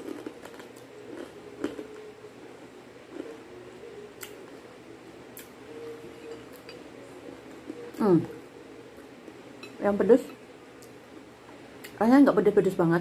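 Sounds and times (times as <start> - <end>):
chewing crispy chips: 0.0 - 4.6.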